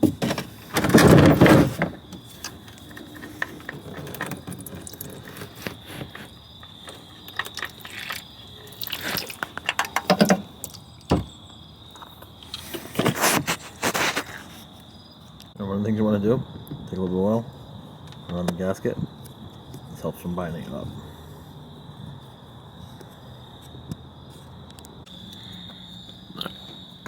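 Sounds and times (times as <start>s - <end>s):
tools scraping and clanking: 0.0s - 10.6s, 12.4s - 14.6s
oil draining: 6.8s - 10.8s.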